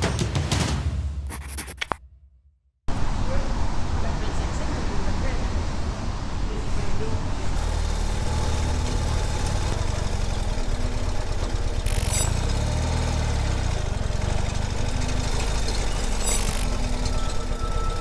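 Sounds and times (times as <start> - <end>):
motorcycle engine low throb: 7.1 - 18.0.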